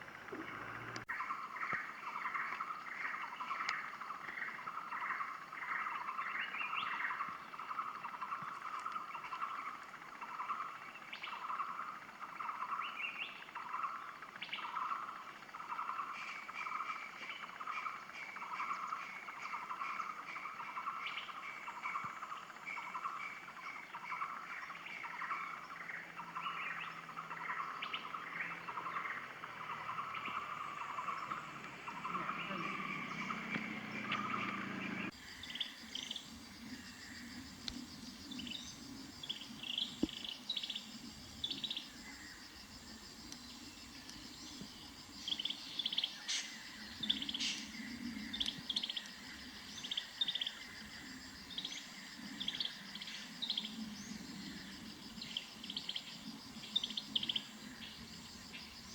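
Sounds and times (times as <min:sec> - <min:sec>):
bird calling: 0:00.0 - 0:50.6.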